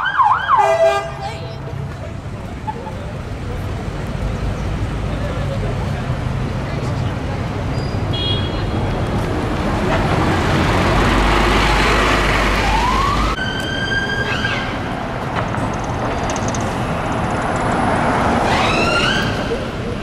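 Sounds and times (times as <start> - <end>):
ambulance siren wailing: 0.0 - 0.9, 12.5 - 14.9, 18.4 - 19.8
bus passing: 0.0 - 20.0.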